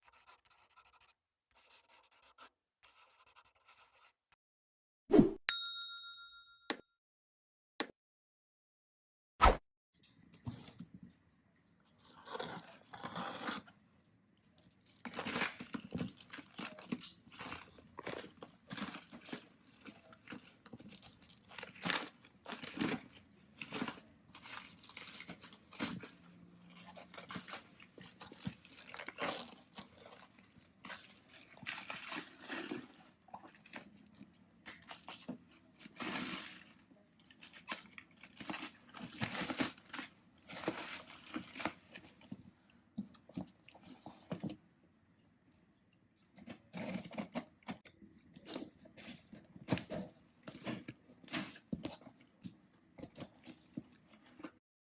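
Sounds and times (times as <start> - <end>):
packaging crinkling and tearing: 12.0 - 13.7, 14.6 - 42.2.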